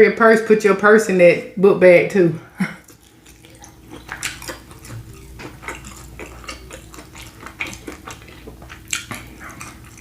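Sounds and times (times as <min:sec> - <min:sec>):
wet clicking of eating: 0:02.8 - 0:10.0.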